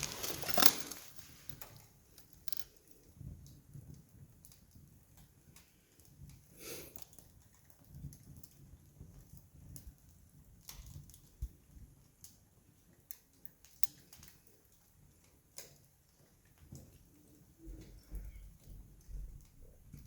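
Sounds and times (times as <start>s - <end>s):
campfire crackling: 2.7s - 17.4s.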